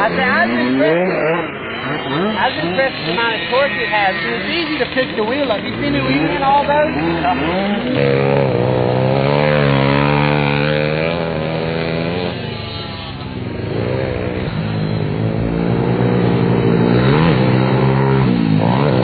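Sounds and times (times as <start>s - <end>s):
pit bike engine revving: 0.0s - 19.0s.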